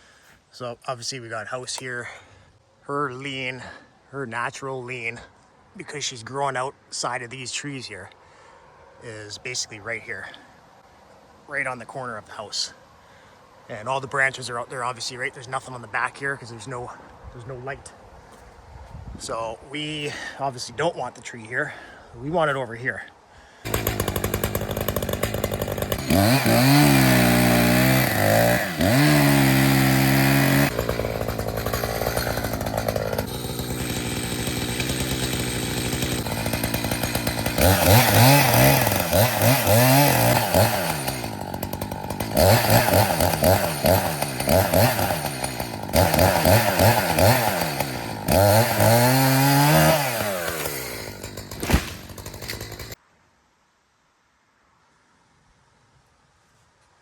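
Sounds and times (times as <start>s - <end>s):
chainsaw revving: 23.7s - 53.0s
sharp thump: 51.6s - 52.1s.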